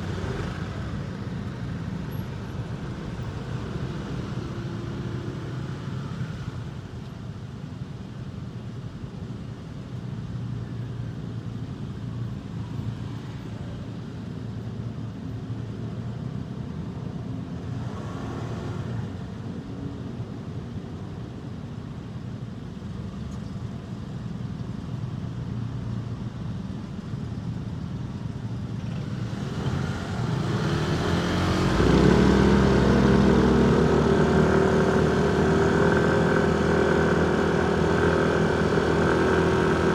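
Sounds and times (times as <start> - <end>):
loud engine hum: 0.0 - 7.0, 28.7 - 39.9
passing traffic: 0.0 - 8.2, 10.7 - 39.9
motorcycle engine: 28.9 - 39.9.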